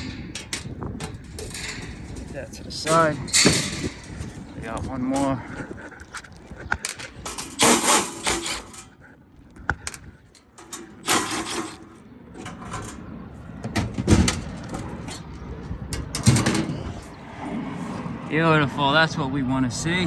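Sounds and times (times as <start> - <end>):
metal clatters: 0.0 - 5.4, 6.2 - 8.9, 9.8 - 15.3
metal parts clicking and scraping: 0.0 - 5.4, 6.0 - 15.3.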